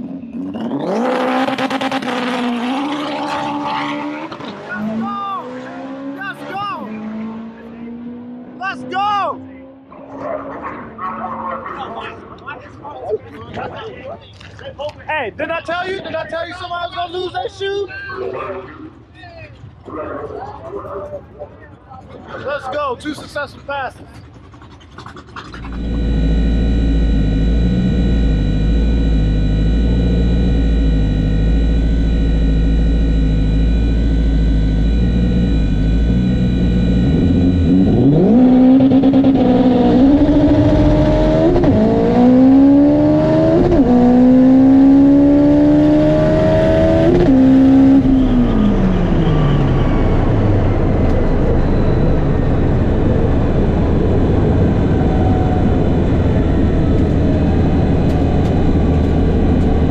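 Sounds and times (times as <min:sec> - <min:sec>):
race car engine revving: 0:00.0 - 0:11.7, 0:25.5 - 0:59.9
gear upshifts: 0:25.3 - 0:59.9.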